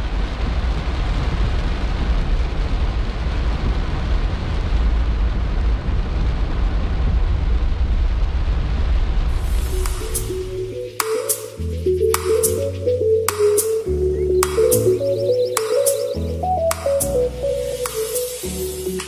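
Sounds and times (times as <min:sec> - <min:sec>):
heavy rain on car roof: 0:00.0 - 0:09.7.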